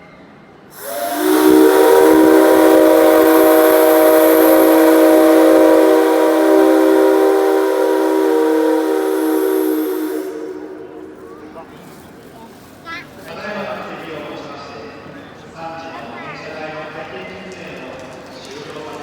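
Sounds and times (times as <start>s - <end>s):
airy hiss: 0.8s - 12.2s.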